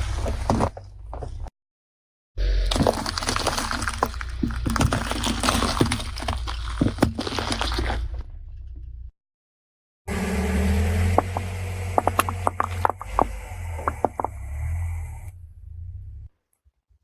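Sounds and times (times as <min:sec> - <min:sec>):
car low rumble: 0:00.0 - 0:01.5, 0:02.4 - 0:09.1, 0:10.1 - 0:16.3
tyre crushing brittle material: 0:02.4 - 0:08.1, 0:11.0 - 0:14.4.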